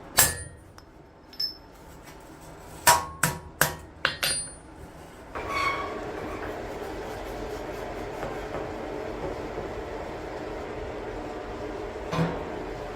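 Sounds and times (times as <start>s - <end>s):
hammer striking steel: 0.0s - 1.6s, 2.9s - 4.7s.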